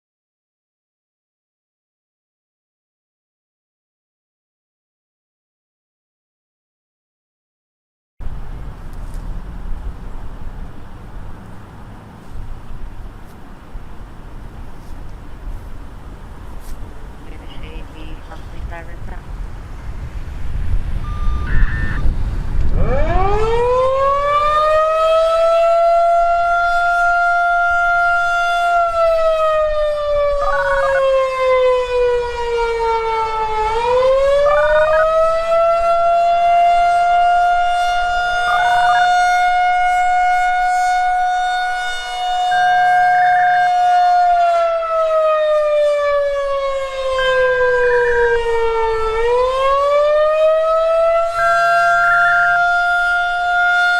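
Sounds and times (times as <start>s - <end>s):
rotating warning siren wailing: 21.0s - 53.9s.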